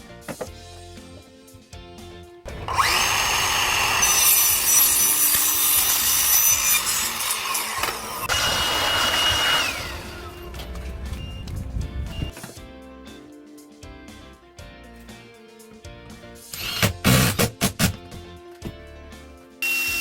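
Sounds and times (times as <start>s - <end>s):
quiet background music: 0.0s - 8.3s, 9.3s - 20.0s
power tool whining: 2.5s - 11.5s, 16.5s - 17.4s, 19.6s - 20.0s.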